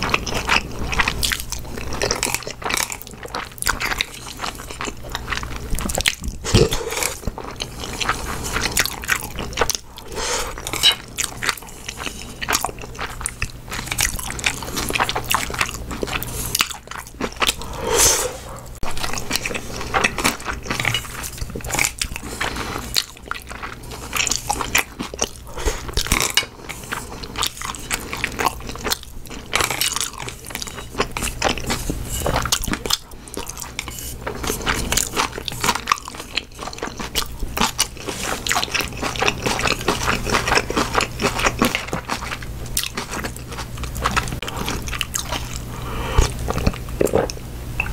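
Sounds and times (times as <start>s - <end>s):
person chewing and crunching food: 0.0s - 47.9s
wet mouth sounds: 5.9s - 7.4s.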